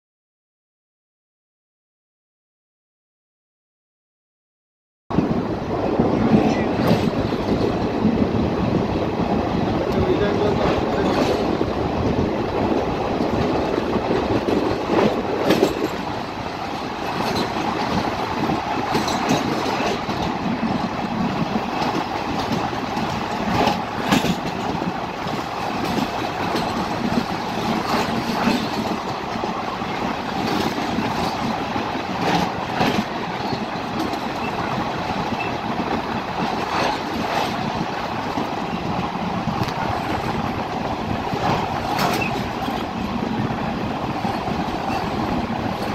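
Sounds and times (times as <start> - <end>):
train wheels rumbling on bridge: 5.1 - 45.9
wheels clacking over rail joints: 6.1 - 45.9.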